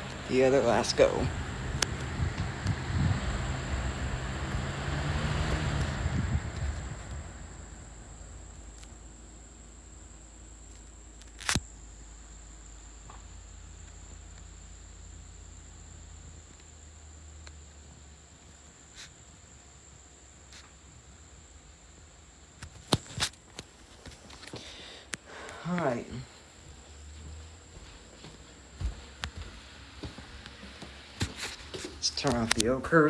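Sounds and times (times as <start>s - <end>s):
ceiling fan hum coasting down: 0.0s - 22.8s, 23.4s - 33.0s.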